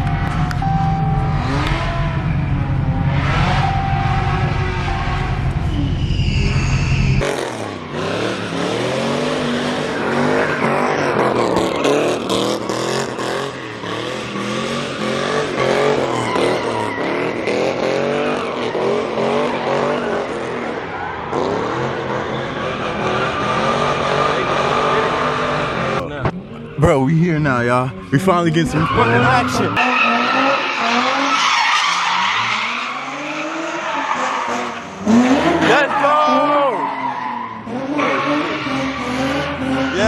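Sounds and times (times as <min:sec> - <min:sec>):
tyre squeal: 0:00.0 - 0:08.0, 0:15.6 - 0:17.6, 0:28.6 - 0:40.0
car engines revving: 0:00.0 - 0:40.0.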